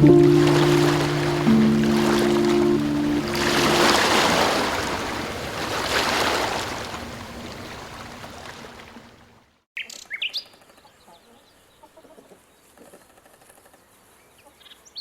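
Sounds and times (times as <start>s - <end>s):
ocean surf washing in: 0.0s - 7.0s.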